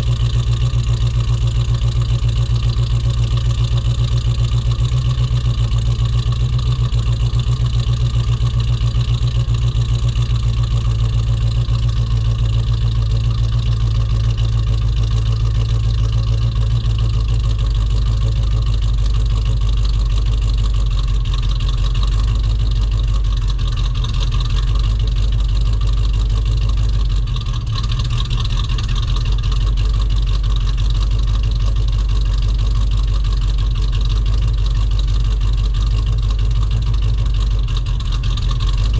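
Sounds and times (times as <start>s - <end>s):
rough engine idling: 0.0s - 38.9s.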